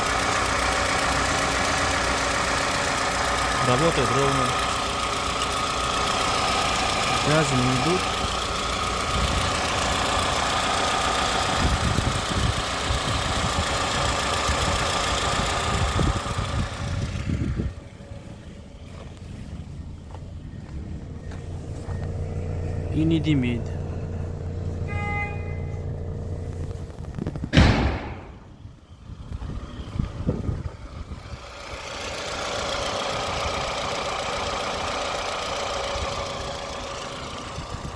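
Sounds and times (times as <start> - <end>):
car engine running steadily: 0.0 - 37.9
loud thump: 27.2 - 28.6.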